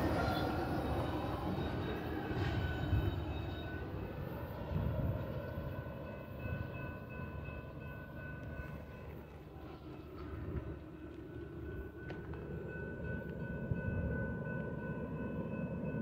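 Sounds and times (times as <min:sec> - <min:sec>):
freight train rolling on rails: 0:00.0 - 0:16.0.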